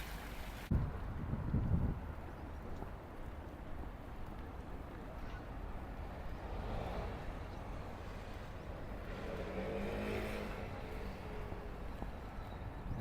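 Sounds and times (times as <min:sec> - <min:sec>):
low traffic rumble: 0:00.0 - 0:13.0
vehicle passing by: 0:06.4 - 0:12.0.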